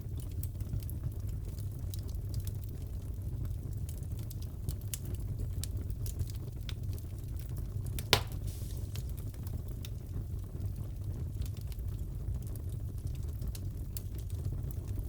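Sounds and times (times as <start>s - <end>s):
wood fire crackling: 0.0s - 15.0s
fire popping: 4.1s - 15.0s.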